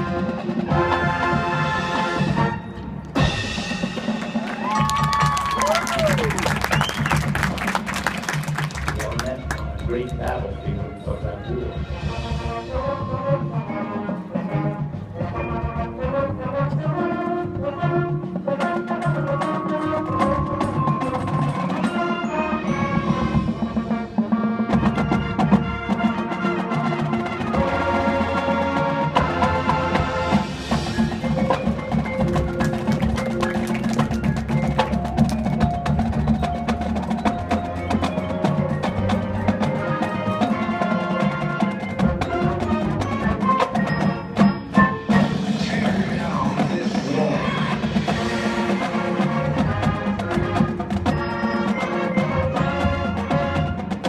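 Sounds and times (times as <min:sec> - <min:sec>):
woodwinds and brass playing: 0:00.0 - 0:35.7, 0:37.4 - 0:54.0
mallet percussion: 0:02.6 - 0:16.7, 0:18.2 - 0:26.1, 0:26.8 - 0:54.0
drum strikes: 0:26.7 - 0:54.0.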